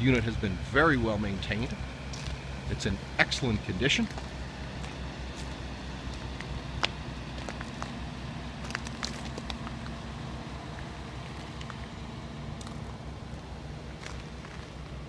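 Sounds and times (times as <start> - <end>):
diesel engine idling: 0.0 - 15.0
light clicks and crunches: 4.0 - 8.0, 8.6 - 10.1, 10.7 - 12.0, 12.6 - 15.0.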